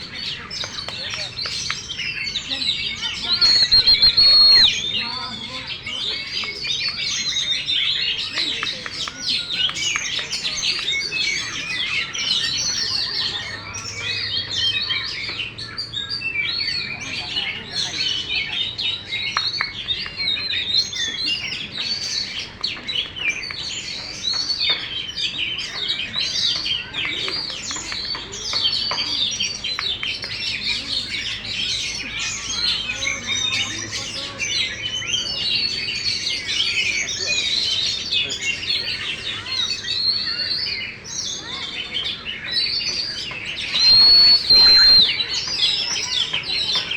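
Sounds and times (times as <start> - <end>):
bird singing whistles and chirps: 0.1 - 22.4, 23.0 - 46.9.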